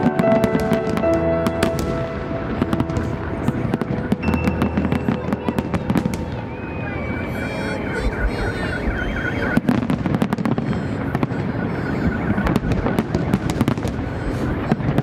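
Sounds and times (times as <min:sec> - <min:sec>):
warbling high tone: 0:00.0 - 0:10.3
fireworks booming and crackling: 0:00.0 - 0:15.0.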